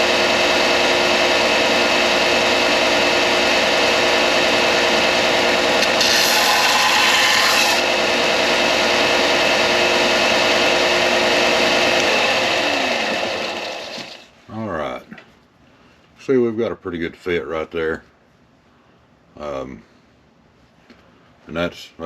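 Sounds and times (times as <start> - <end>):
belt sander running: 0.0 - 14.3
sander motor winding down: 0.0 - 14.3.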